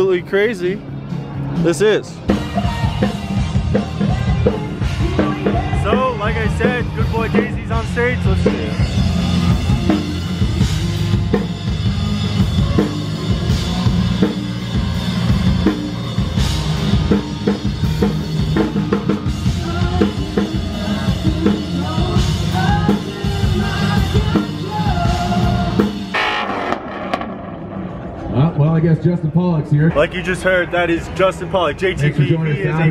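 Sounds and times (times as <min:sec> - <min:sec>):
live rock band playing: 0:00.8 - 0:27.8
drum kit beat: 0:02.2 - 0:26.6.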